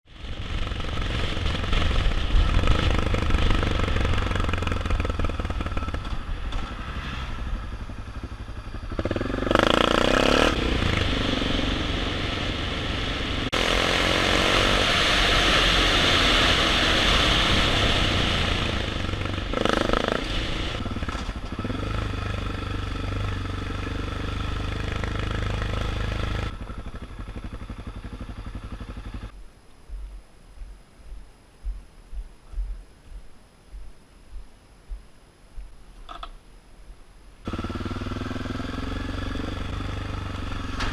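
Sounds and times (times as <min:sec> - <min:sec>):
rushing noise: 0:00.1 - 0:30.1
motorcycle engine running: 0:00.1 - 0:30.7, 0:37.4 - 0:40.9.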